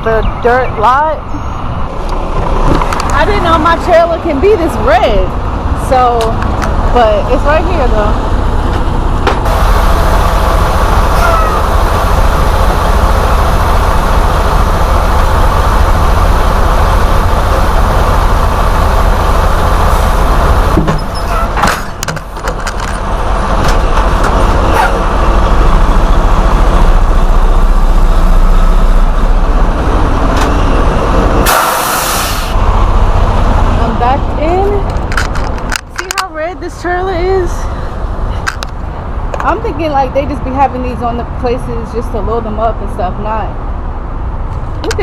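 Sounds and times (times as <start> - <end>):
truck diesel engine running: 0.0 - 45.0
short burst of hiss: 31.5 - 32.6.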